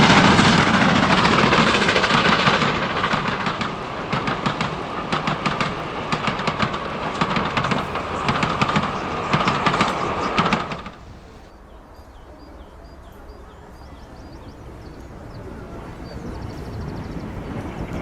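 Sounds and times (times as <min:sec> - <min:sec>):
train wheels clicking on rails: 0:00.0 - 0:11.5.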